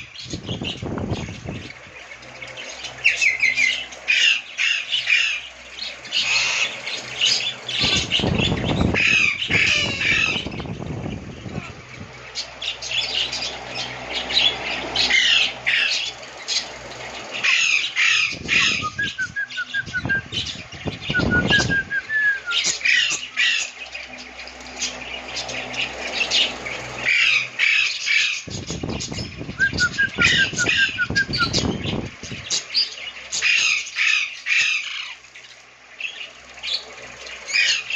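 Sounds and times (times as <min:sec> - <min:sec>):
low rumbling noise: 0:00.0 - 0:33.3
lovebirds chattering: 0:00.0 - 0:37.9.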